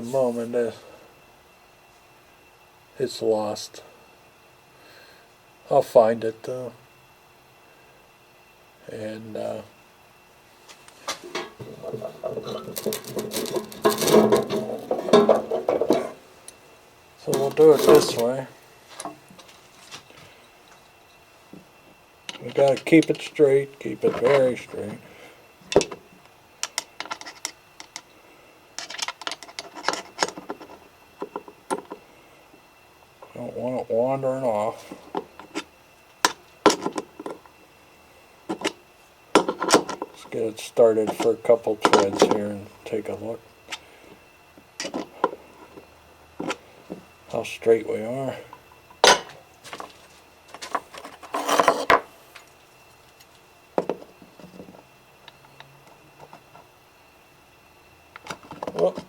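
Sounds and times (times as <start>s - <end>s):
hand tools clicking and knocking: 11.2s - 16.2s, 22.3s - 23.3s, 25.6s - 26.0s, 26.6s - 28.1s, 28.8s - 32.0s, 38.5s - 38.8s, 39.4s - 40.3s, 44.8s - 45.8s, 58.2s - 59.0s.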